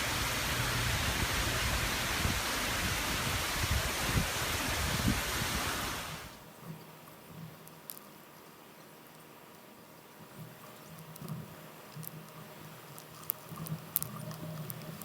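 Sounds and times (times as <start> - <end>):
wind and surf rushing: 0.0 - 6.4
wind buffeting microphone: 0.0 - 6.4.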